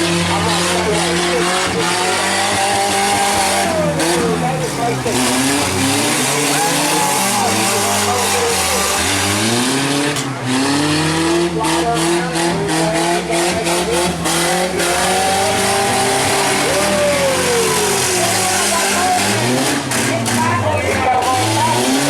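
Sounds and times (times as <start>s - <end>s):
engines revving: 0.0s - 22.0s.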